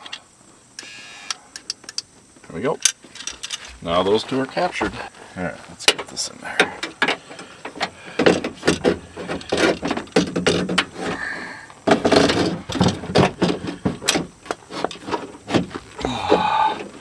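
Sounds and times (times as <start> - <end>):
metal knocks and clanks: 5.8 - 11.2, 11.9 - 15.8.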